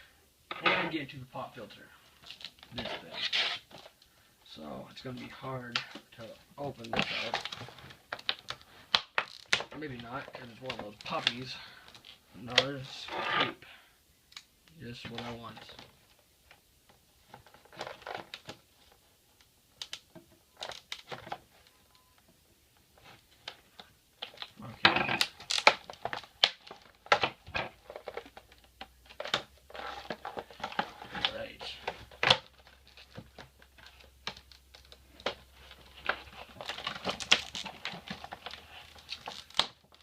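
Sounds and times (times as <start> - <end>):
packaging scratching and clicking: 24.2 - 40.0.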